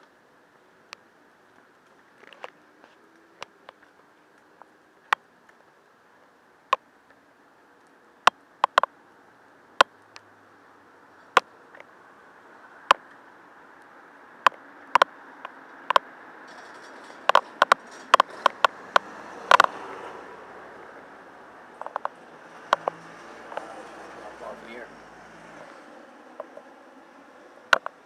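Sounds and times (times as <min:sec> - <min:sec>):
bicycle clicks and rattles: 0:14.5 - 0:20.1, 0:21.7 - 0:24.1.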